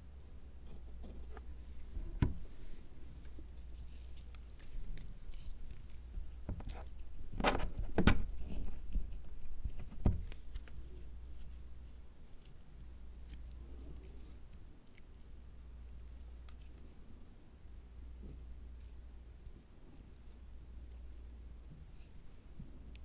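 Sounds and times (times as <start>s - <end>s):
faint steady hum: 0.0s - 23.0s
soft rustling: 0.4s - 17.0s
light taps and knocks: 0.7s - 2.5s, 7.4s - 10.8s.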